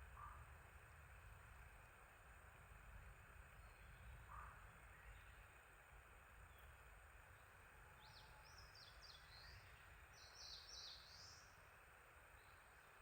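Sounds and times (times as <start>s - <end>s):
songbird singing: 3.5s - 5.6s, 6.4s - 11.6s, 12.2s - 13.0s.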